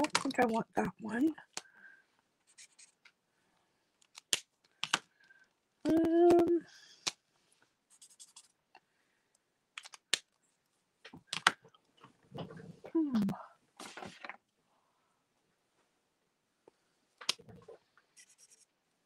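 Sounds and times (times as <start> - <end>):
person humming: 5.8 - 6.7
marker caps clicking: 9.8 - 10.3, 11.2 - 11.6.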